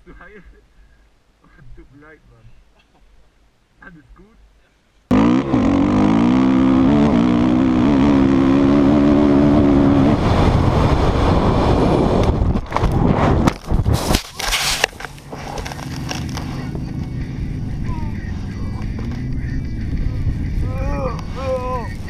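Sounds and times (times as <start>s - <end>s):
dirt bike engine revving: 5.1s - 12.2s.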